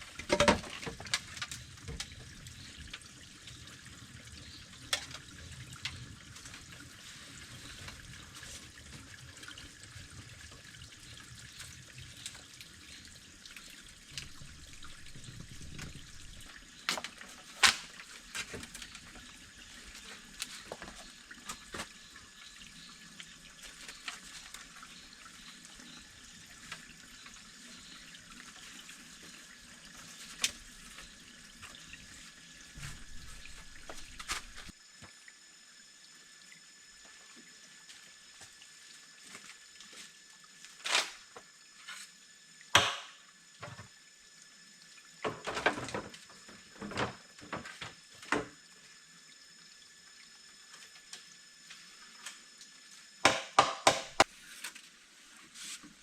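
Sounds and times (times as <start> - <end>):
water trickling: 0.0 - 53.2
sharp knocks: 53.3 - 54.2.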